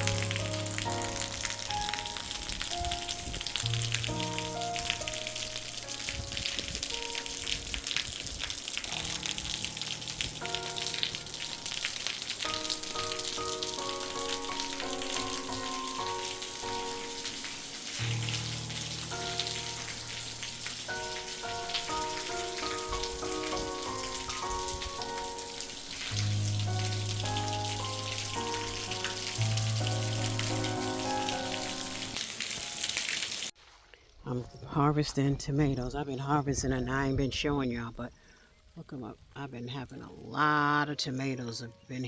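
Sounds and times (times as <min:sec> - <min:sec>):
steady rain falling: 0:00.0 - 0:33.6.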